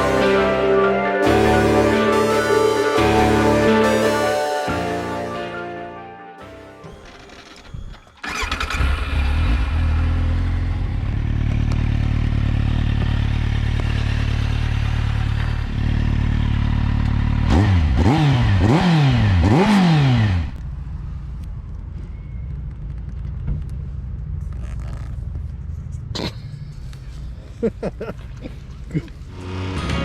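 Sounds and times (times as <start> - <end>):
motorcycle engine starting and idling: 6.8 - 25.5
motorcycle engine revving: 8.2 - 20.6, 29.2 - 30.0.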